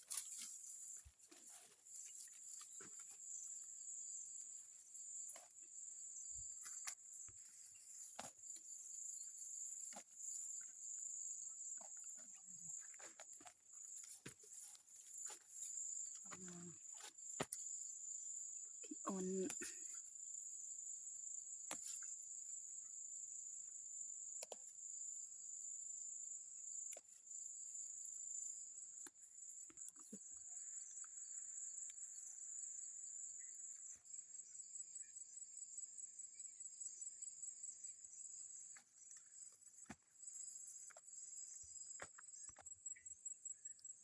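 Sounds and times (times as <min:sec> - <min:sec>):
crickets trilling: 0:00.0 - 0:44.0.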